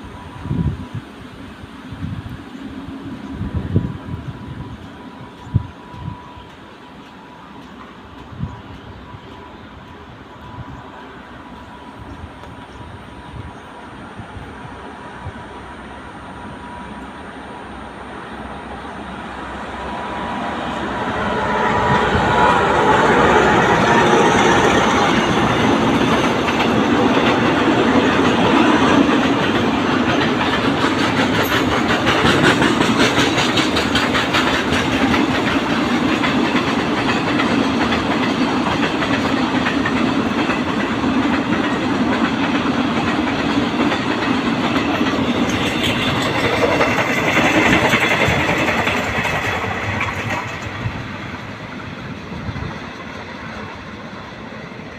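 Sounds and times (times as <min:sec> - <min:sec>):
train cars rumbling: 0:00.0 - 0:54.9
wheels clacking over rail joints: 0:21.1 - 0:54.0.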